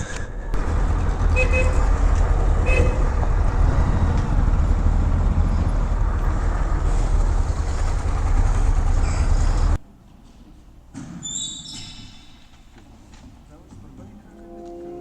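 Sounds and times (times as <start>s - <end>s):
motorcycle engine running: 0.6s - 9.8s.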